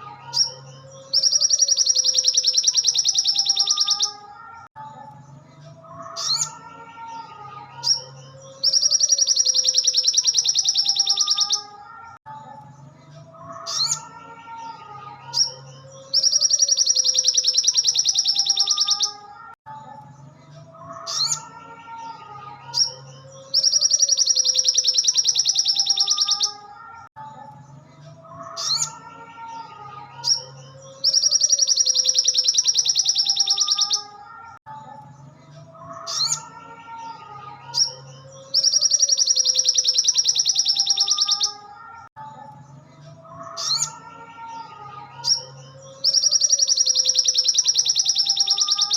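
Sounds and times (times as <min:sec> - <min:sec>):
bird chirps: 0:00.1 - 0:04.6, 0:07.8 - 0:11.9, 0:15.3 - 0:19.5, 0:22.7 - 0:27.0, 0:30.2 - 0:35.3, 0:37.7 - 0:42.1, 0:45.2 - 0:48.9.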